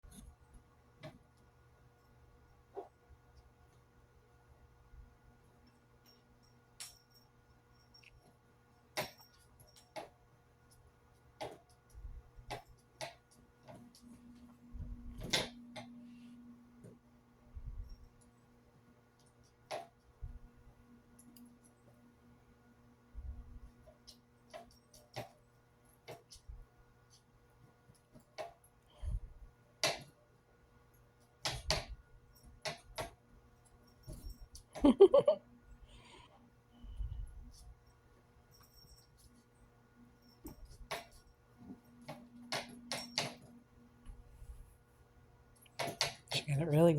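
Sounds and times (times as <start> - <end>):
steady low hum: 11.9 - 24.3, 33.4 - 45.7.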